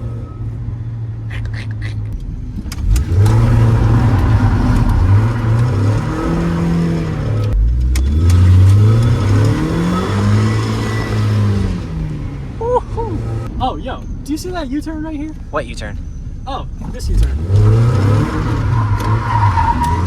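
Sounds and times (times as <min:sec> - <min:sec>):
car engine revving hard: 0:02.7 - 0:13.5, 0:17.1 - 0:20.0.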